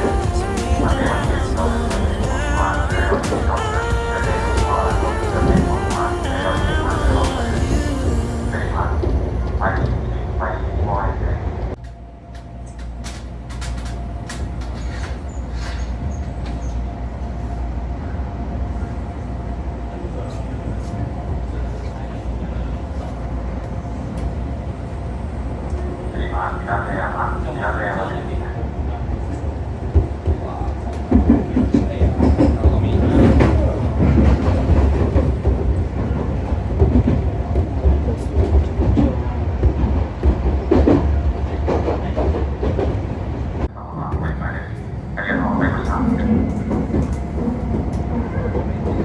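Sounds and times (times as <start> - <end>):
train rumble: 0.0 - 49.0.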